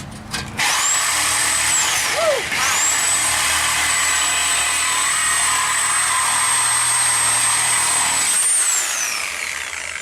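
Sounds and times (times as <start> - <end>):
power tool cutting steel pipe: 0.6 - 10.0.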